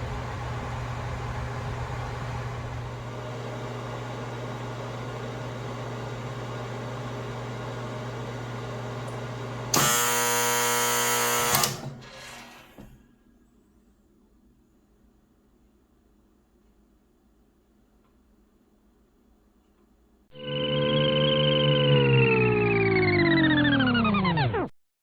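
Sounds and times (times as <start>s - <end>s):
microwave oven hum: 0.0s - 13.3s
loud steady tone: 20.3s - 24.7s.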